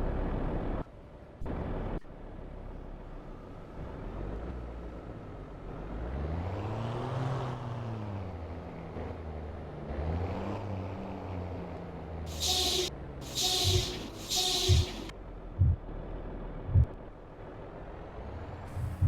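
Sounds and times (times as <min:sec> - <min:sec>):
diesel truck engine revving: 0:12.3 - 0:15.1.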